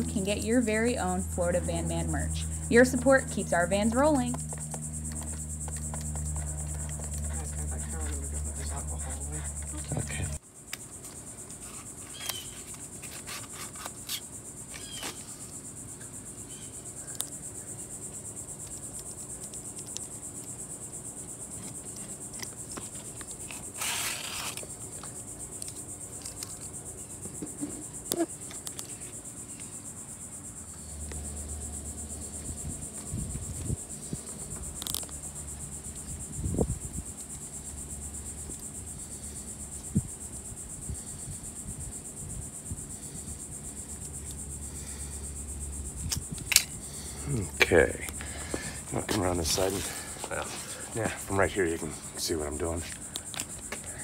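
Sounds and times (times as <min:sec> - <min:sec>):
low hum: 0:00.0 - 0:10.4
insects chorus: 0:00.0 - 0:54.0
rustle: 0:04.4 - 0:51.2.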